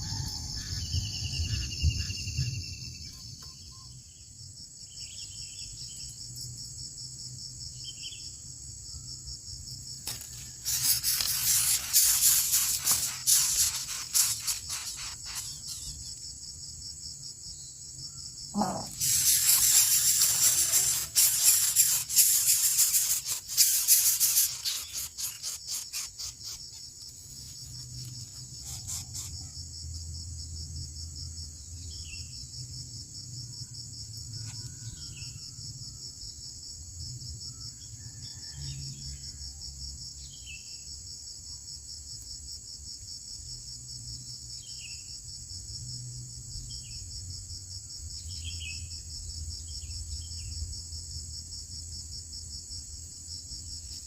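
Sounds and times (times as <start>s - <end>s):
high insect trilling: 9.7s - 16.5s, 18.1s - 30.0s.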